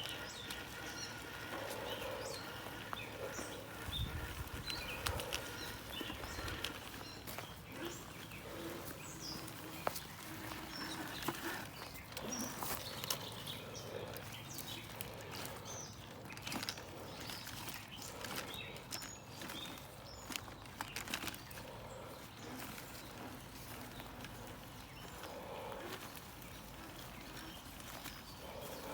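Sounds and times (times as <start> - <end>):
birds chirping: 0.0 - 28.9
sharp clicks and crunches: 9.4 - 28.9.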